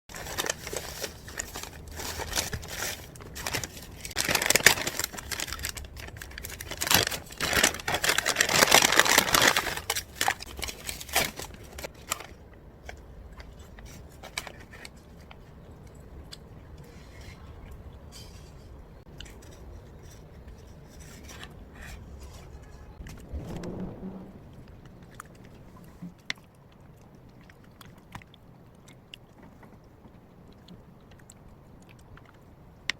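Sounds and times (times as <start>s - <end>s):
packaging crinkling and tearing: 0.1s - 15.0s.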